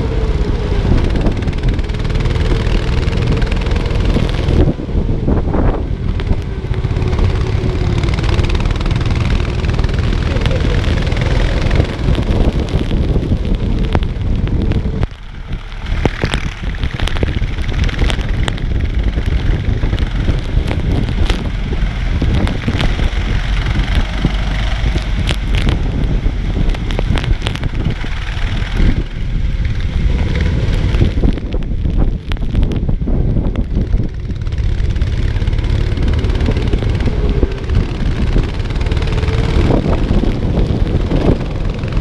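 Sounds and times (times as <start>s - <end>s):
kart engine running: 0.0s - 42.0s
wind and rain rushing: 0.0s - 42.0s
sharp clicks: 1.0s - 4.7s, 6.1s - 32.9s.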